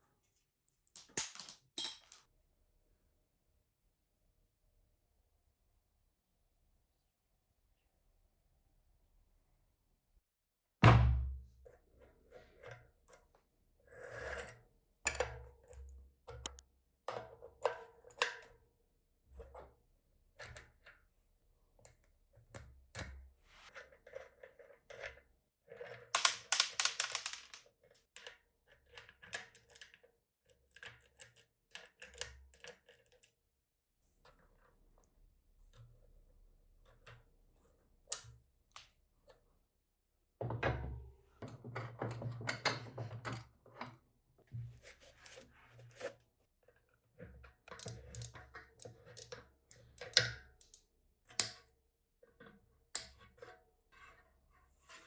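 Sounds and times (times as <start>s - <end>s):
metal parts clicking and clinking: 0.8s - 2.2s, 26.2s - 27.6s.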